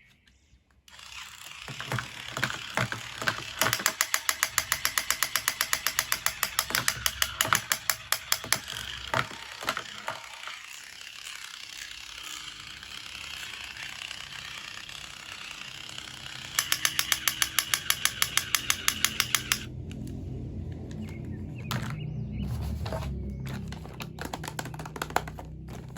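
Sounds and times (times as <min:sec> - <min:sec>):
rapid mechanical clicking: 0:01.0 - 0:19.7.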